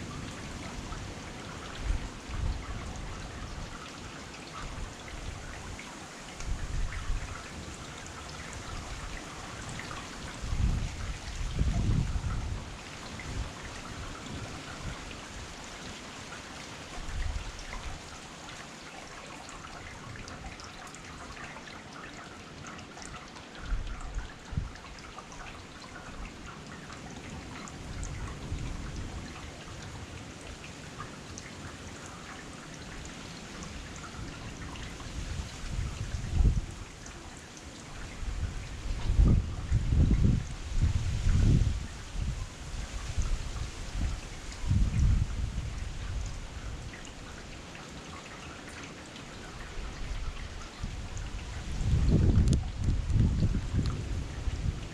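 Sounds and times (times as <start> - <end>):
heavy rain pattering: 0.0 - 54.9.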